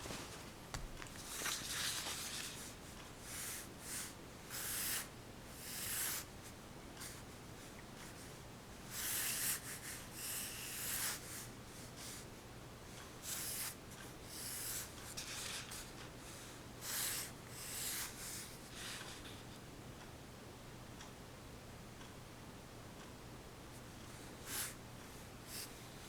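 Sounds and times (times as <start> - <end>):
pencil scratching on paper: 3.4 - 6.3, 8.9 - 11.4, 13.3 - 13.8, 14.4 - 15.9.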